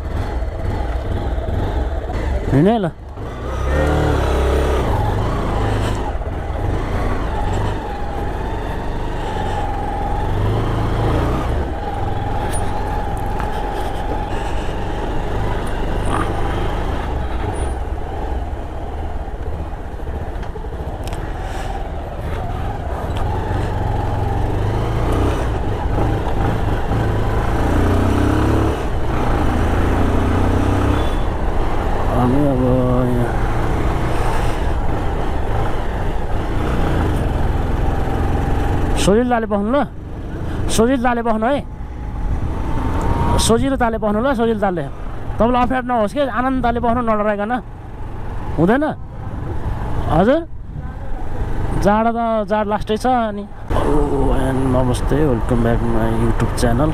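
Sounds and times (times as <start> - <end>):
motorcycle engine rumble: 0.0 - 56.9
road and wind noise: 0.0 - 56.9.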